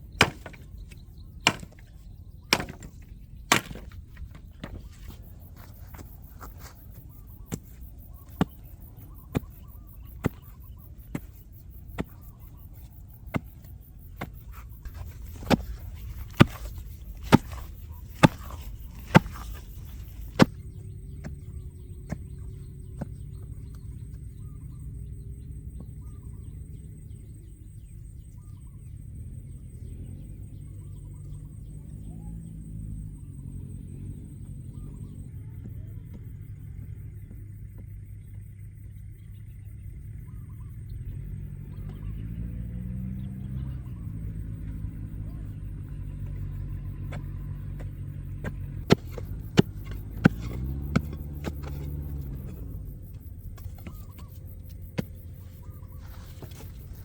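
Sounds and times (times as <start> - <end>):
low steady rumble: 0.0 - 57.0
sharp chopping strikes: 0.1 - 1.9, 2.5 - 4.8, 13.3 - 21.4, 47.1 - 52.8
faint chirps: 4.4 - 57.0.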